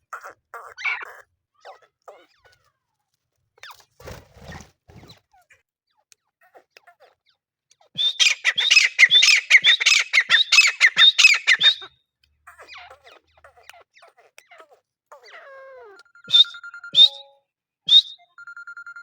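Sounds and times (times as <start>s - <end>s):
francolin calling shrill notes: 8.0s - 11.9s, 16.3s - 18.3s.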